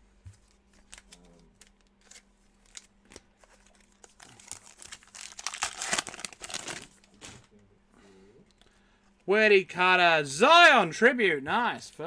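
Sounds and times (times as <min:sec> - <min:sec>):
card pack wrapper crinkling and tearing: 0:00.8 - 0:07.2.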